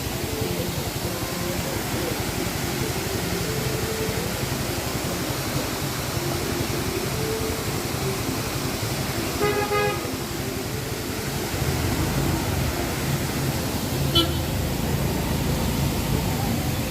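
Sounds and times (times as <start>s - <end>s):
falling water rushing: 0.0s - 16.9s
low engine rumble: 0.0s - 16.9s
road traffic: 0.0s - 16.9s
vehicle horn toot: 9.4s - 10.2s, 14.1s - 14.6s.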